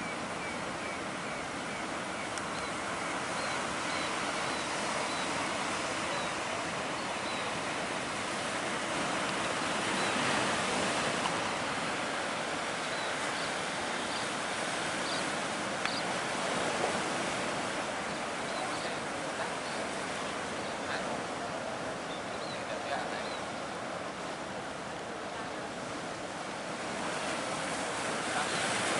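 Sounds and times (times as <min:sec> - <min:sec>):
sea waves breaking: 0:00.0 - 0:28.9.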